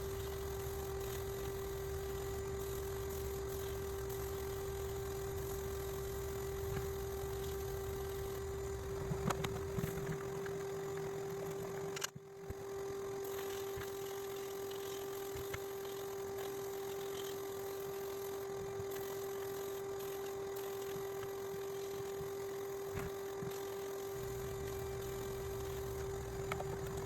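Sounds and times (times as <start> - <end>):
electric motor humming: 0.0 - 27.0.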